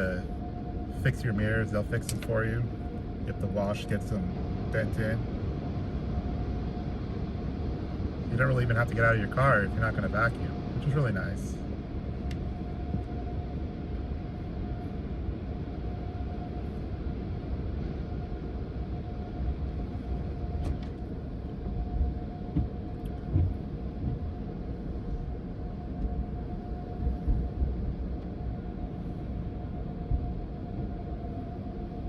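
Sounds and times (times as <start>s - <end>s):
constant hum: 0.0s - 32.0s
vehicle cabin rumble: 0.0s - 32.0s
soft thumps: 22.5s - 24.3s.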